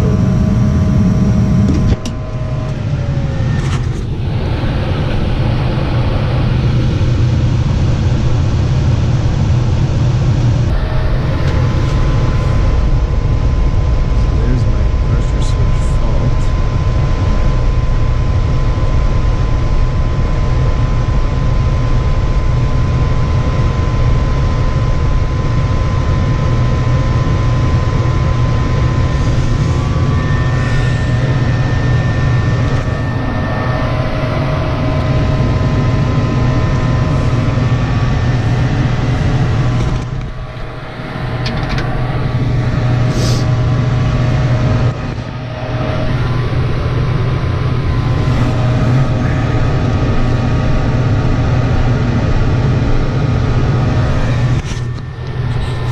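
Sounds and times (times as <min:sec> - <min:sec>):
faint steady whine: 0:00.0 - 0:55.9
furnace motor drone: 0:00.0 - 0:55.9.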